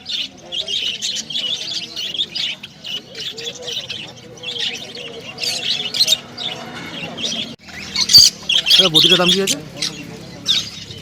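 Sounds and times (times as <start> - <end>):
faint voices: 0.0 - 11.0
small birds chirping: 0.0 - 11.0.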